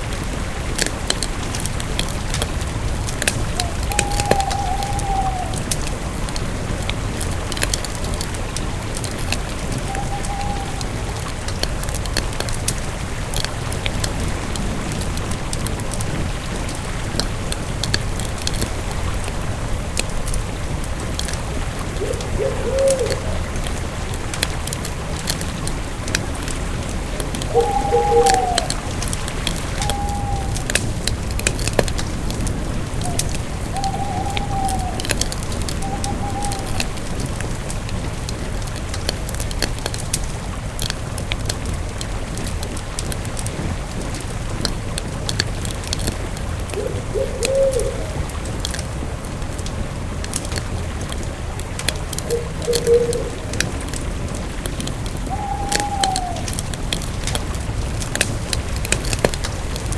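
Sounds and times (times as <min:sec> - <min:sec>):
campfire crackling: 0:00.0 - 0:59.9
bird call: 0:03.5 - 0:05.7, 0:09.7 - 0:11.3, 0:27.5 - 0:30.7, 0:33.0 - 0:37.0, 0:52.3 - 0:53.4, 0:55.2 - 0:56.6.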